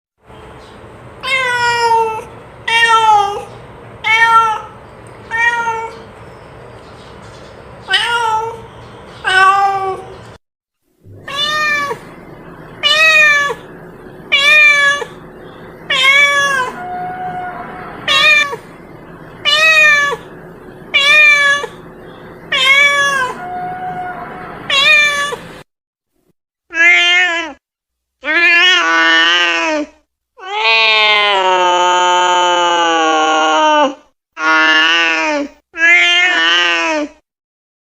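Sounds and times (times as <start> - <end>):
cat meowing: 1.2 - 6.1, 7.9 - 10.1, 11.1 - 12.1, 12.8 - 13.7, 14.3 - 15.2, 15.8 - 18.7, 19.4 - 20.3, 20.9 - 21.8, 22.5 - 25.5, 26.7 - 27.6, 28.2 - 31.6, 35.8 - 37.1.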